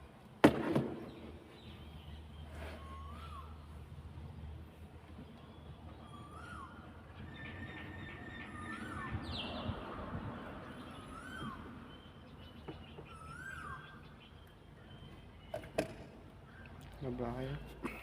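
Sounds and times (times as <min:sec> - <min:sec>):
bird calling: 0:01.1 - 0:03.8, 0:05.4 - 0:09.9, 0:10.7 - 0:17.8
high twittering calls: 0:05.4 - 0:17.8.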